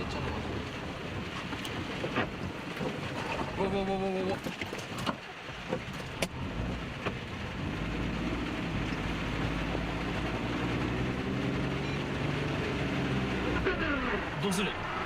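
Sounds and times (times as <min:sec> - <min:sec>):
rain: 0:00.0 - 0:15.0
water washing: 0:00.0 - 0:15.0
car engine revving under load: 0:05.6 - 0:15.0.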